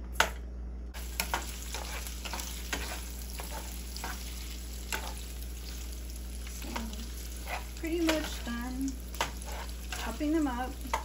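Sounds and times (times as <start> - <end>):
sausages sizzling in a pan: 1.0 - 11.0
plastic spatula scraping a pan: 9.2 - 10.2.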